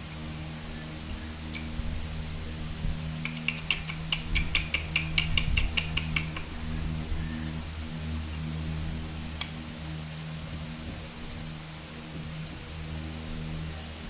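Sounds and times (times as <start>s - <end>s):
plastic bricks clicking together: 3.2s - 6.5s.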